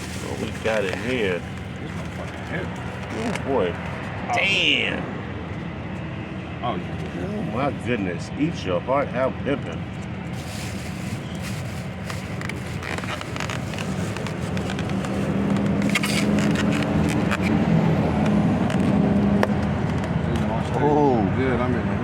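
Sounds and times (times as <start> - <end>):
car engine running: 0.0 - 21.8
rustling: 10.3 - 17.5.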